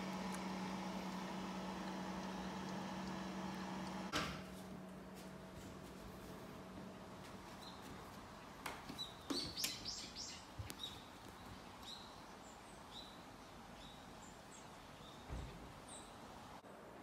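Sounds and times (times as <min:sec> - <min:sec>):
small birds chirping: 0:07.6 - 0:16.4.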